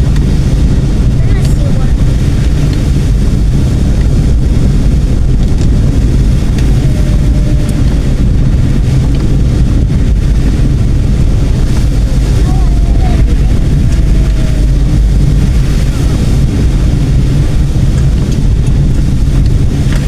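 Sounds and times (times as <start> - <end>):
car interior road rumble: 0.0 - 20.0.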